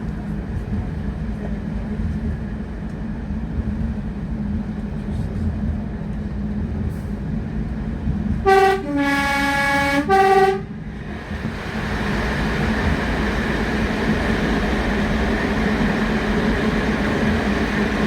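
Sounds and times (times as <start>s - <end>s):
two-tone train horn: 8.4s - 10.8s.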